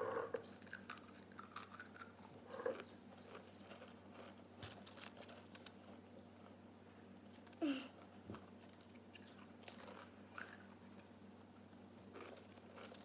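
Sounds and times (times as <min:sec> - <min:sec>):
potato crisp crunching: 0:00.4 - 0:06.6, 0:08.6 - 0:11.0, 0:12.0 - 0:13.0.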